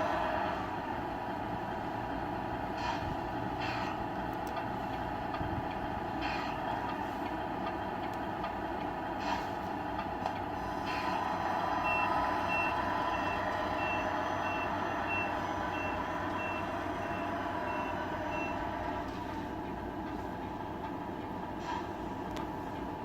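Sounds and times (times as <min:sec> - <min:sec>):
simulated diesel truck engine: 0:00.0 - 0:23.0
reversing beeper: 0:10.7 - 0:18.9.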